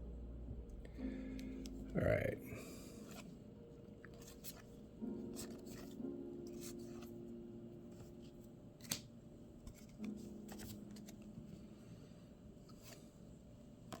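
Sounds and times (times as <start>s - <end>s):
paper cards sliding and flicking: 8.8s - 9.1s.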